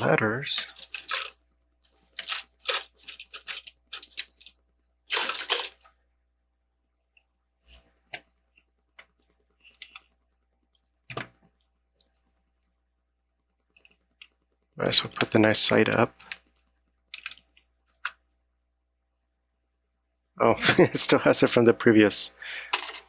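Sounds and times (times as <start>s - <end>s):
plastic toy bricks clicking: 2.2s - 4.6s.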